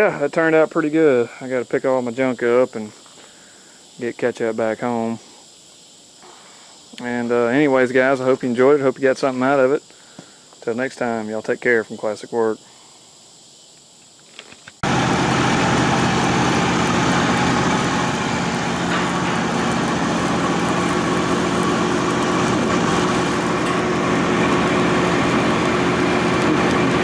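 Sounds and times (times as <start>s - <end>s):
engine running steadily: 14.8s - 27.0s.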